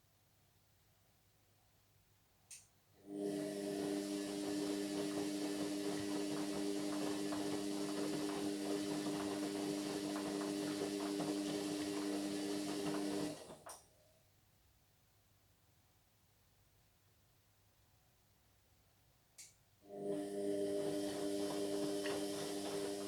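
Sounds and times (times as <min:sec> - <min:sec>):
washing machine electric hum: 0:03.0 - 0:13.8, 0:19.8 - 0:23.0.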